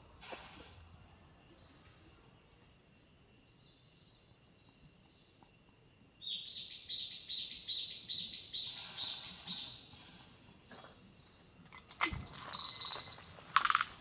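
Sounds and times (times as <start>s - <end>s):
songbird singing high notes: 6.2s - 9.9s.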